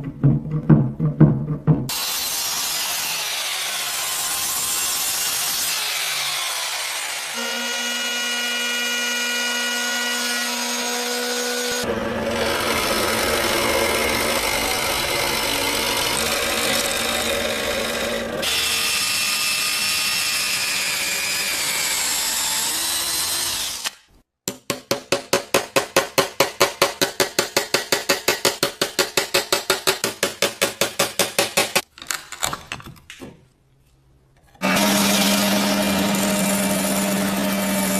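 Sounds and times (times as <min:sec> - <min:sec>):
power tool whining: 0:01.9 - 0:24.0, 0:34.6 - 0:37.9
rough grinding noise: 0:10.7 - 0:18.8.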